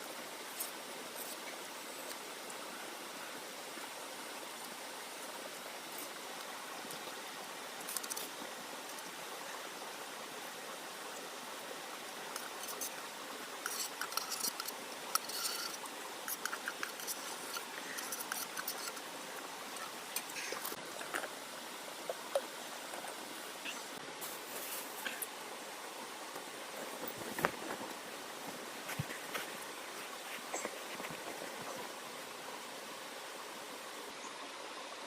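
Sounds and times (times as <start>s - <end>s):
rain hissing: 0.0s - 34.2s
small clicks and rustles: 7.8s - 9.2s, 12.3s - 21.4s.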